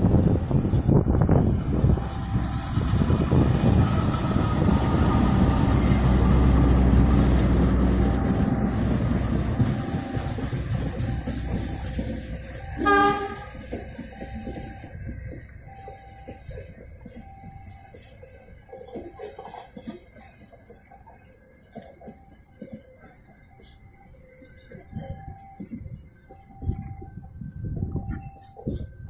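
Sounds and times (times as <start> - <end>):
train wheels rumbling on rail: 0.0 - 29.0
high wheel squeal: 1.8 - 18.2, 19.2 - 29.0
train horn blast: 12.7 - 13.8.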